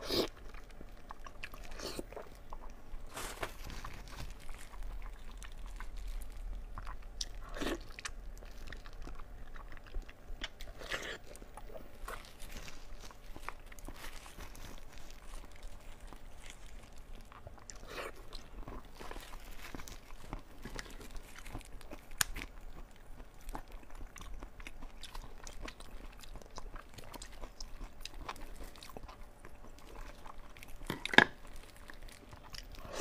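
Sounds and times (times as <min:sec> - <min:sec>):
wet chewing: 0:00.0 - 0:33.0.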